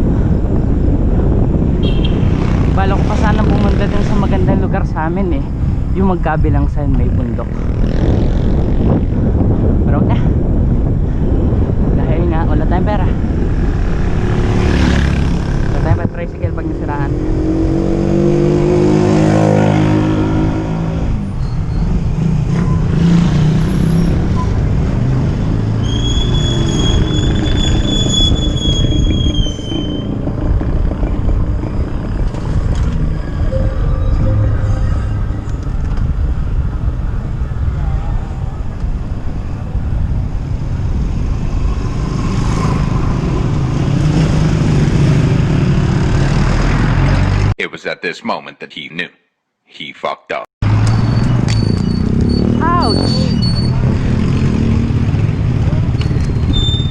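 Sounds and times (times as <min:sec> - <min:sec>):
wind buffeting microphone: 0:00.0 - 0:25.7, 0:26.9 - 0:46.1
motor vehicle engine hum: 0:00.0 - 0:47.5, 0:50.6 - 0:56.9
road traffic: 0:00.0 - 0:47.6, 0:50.6 - 0:56.9
high-pitched squeal: 0:25.8 - 0:37.0, 0:50.8 - 0:54.6
vehicle engine passing: 0:30.0 - 0:38.6.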